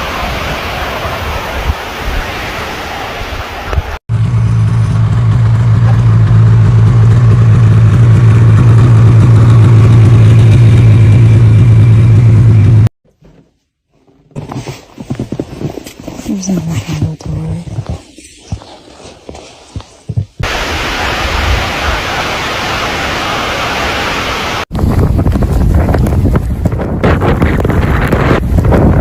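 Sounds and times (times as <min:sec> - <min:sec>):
loud low motor drone: 0:04.1 - 0:12.9.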